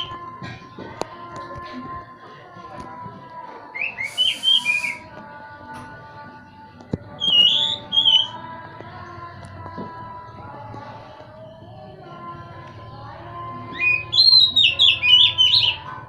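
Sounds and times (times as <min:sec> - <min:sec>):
bird singing whistled phrases: 0:03.8 - 0:05.1, 0:07.2 - 0:08.3, 0:13.8 - 0:15.8.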